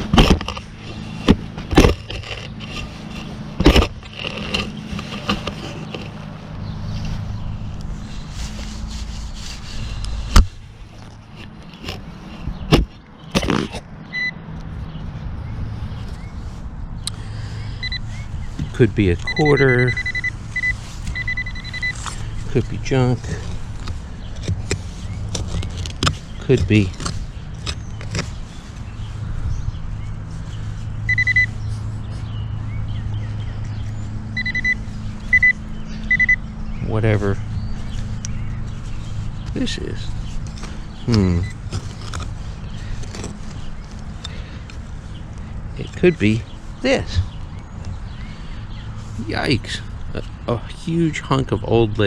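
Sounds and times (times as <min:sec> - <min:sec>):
shovel digging into soil: 0:00.0 - 0:06.1, 0:12.7 - 0:13.9
metal detector beep: 0:14.1 - 0:14.4, 0:17.8 - 0:18.1, 0:19.2 - 0:22.0, 0:31.1 - 0:31.6, 0:34.4 - 0:36.4.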